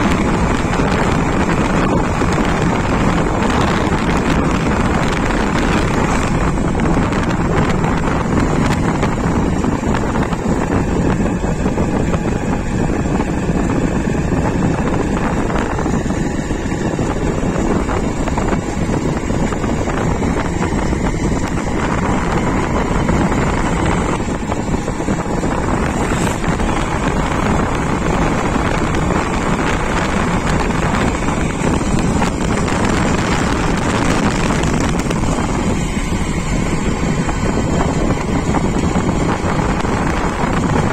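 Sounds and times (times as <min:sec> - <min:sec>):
engine rumble: 0:00.0 - 0:40.9
wind buffeting microphone: 0:00.0 - 0:40.9.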